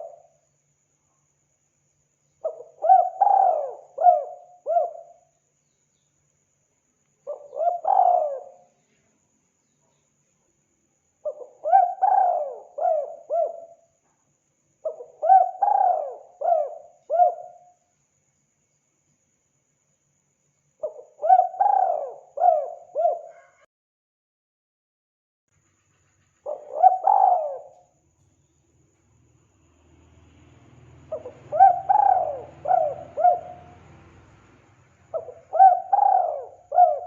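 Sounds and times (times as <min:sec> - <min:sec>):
dove cooing: 0:00.0 - 0:00.3, 0:02.4 - 0:05.2, 0:07.3 - 0:08.7, 0:11.2 - 0:13.8, 0:14.8 - 0:17.7, 0:20.8 - 0:23.6, 0:26.4 - 0:27.9, 0:31.1 - 0:33.8, 0:35.1 - 0:37.0.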